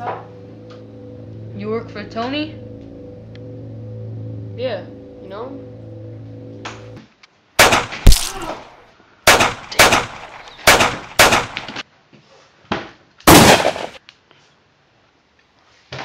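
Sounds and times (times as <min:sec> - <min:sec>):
gunshots: 0:07.6 - 0:08.7, 0:09.3 - 0:11.8, 0:13.3 - 0:14.0.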